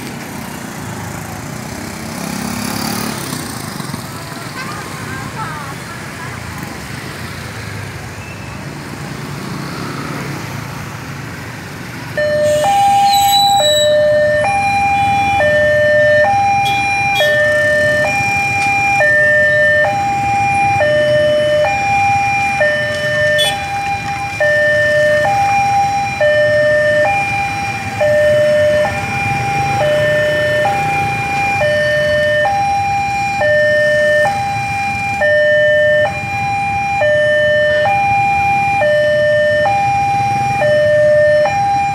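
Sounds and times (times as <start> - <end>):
motorbike traffic rumble: 0.0 - 41.9
level crossing two-tone alarm: 12.1 - 41.9.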